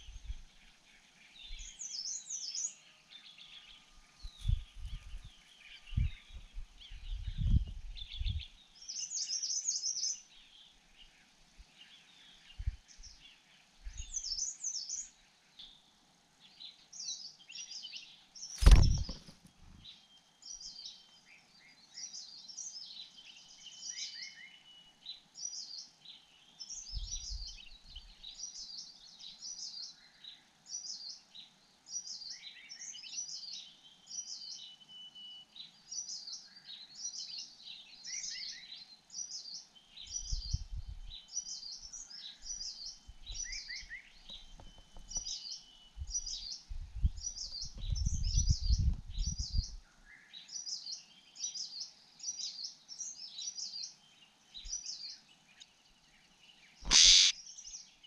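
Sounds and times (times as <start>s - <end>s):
low rumble on microphone: 0.0s - 0.5s, 4.3s - 8.6s, 12.5s - 12.9s, 40.2s - 41.2s, 46.0s - 49.8s
birds chirping: 0.0s - 58.0s.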